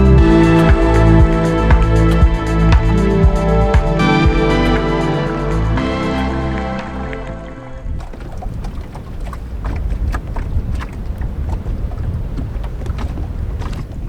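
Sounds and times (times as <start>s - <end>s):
wind buffeting microphone: 7.7s - 14.0s
light clicks and knocks: 7.8s - 14.0s.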